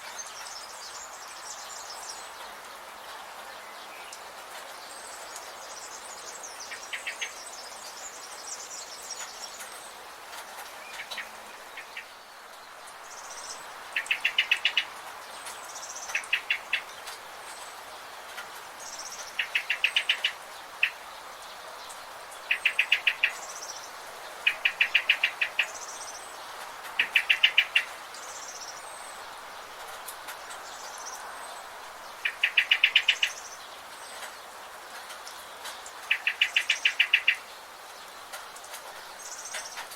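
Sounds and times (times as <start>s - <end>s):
background hiss: 0.0s - 39.9s
bird trilling: 32.2s - 33.4s.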